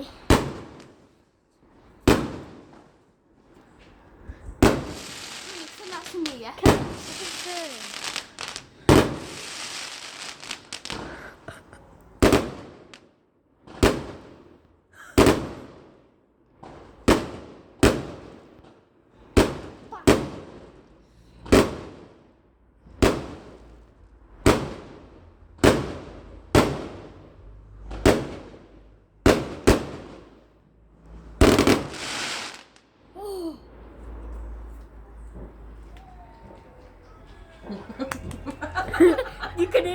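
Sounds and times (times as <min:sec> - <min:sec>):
fireworks exploding: 0:00.0 - 0:01.1, 0:02.0 - 0:03.0, 0:03.8 - 0:13.0, 0:13.7 - 0:14.6, 0:15.2 - 0:16.0, 0:16.6 - 0:18.7, 0:19.3 - 0:20.8, 0:21.4 - 0:22.2, 0:22.9 - 0:23.7, 0:24.4 - 0:27.2, 0:27.9 - 0:30.4, 0:31.3 - 0:32.9.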